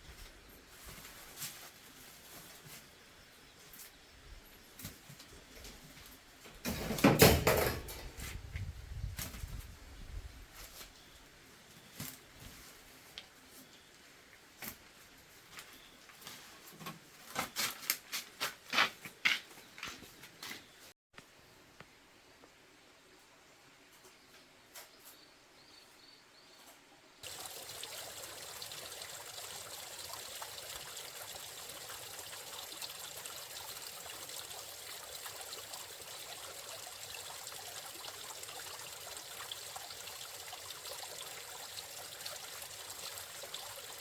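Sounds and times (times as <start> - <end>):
water trickling through culvert: 27.2 - 44.0.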